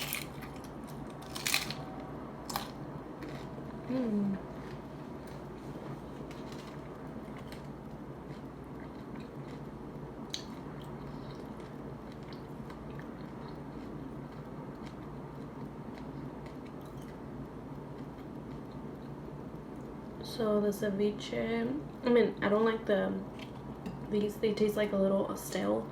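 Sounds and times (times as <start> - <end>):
chewing crunchy food: 0.0 - 20.0.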